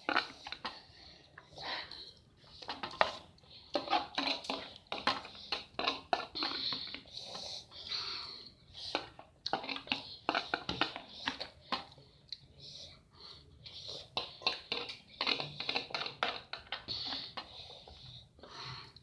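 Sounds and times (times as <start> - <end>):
eating noises: 0.0 - 12.6.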